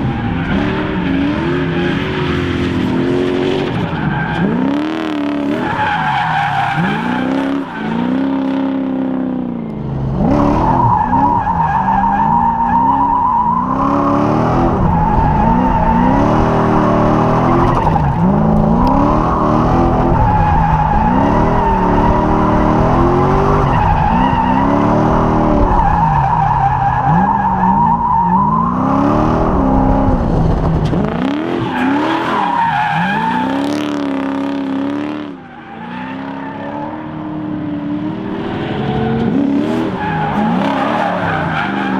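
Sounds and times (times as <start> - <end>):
tires squealing: 0.0 - 41.9
engine revving up and down: 13.7 - 26.0, 28.5 - 35.4, 36.2 - 41.9.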